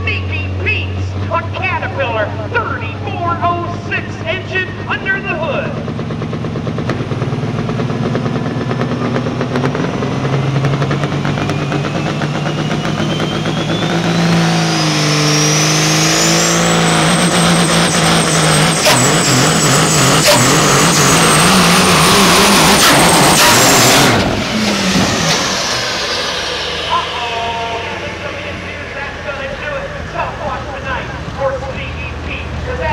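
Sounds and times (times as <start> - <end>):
truck diesel engine under load: 0.0 - 32.9
turbo whine: 6.2 - 31.5.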